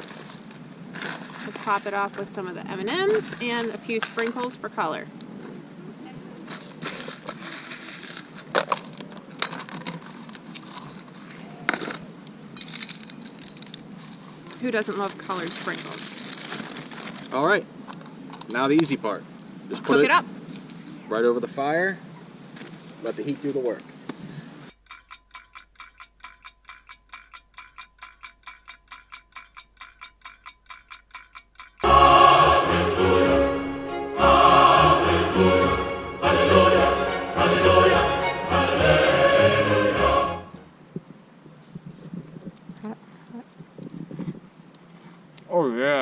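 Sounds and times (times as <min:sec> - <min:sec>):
rapid metallic ticking: 0:24.7 - 0:32.1.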